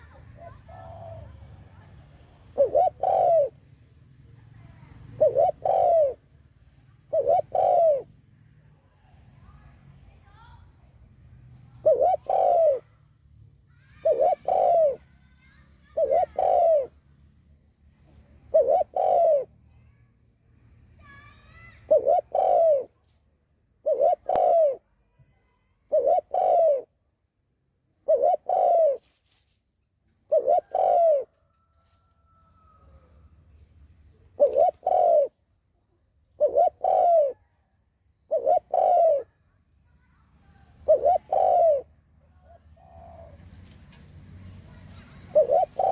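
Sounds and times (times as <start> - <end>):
dove cooing: 0.0 - 3.6, 4.6 - 6.3, 7.0 - 8.1, 11.8 - 13.0, 14.0 - 15.1, 15.8 - 17.0, 18.4 - 19.6, 21.8 - 22.9, 23.8 - 24.9, 25.9 - 26.9, 28.0 - 29.0, 30.2 - 33.2, 34.3 - 35.4, 36.4 - 37.5, 38.3 - 39.4, 40.5 - 43.5, 44.7 - 45.9.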